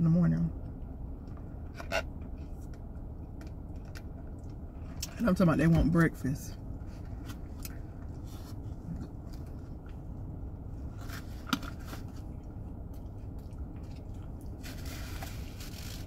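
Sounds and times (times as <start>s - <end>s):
steady low rumble: 0.0s - 16.0s
chewing and mouth sounds: 12.2s - 14.7s.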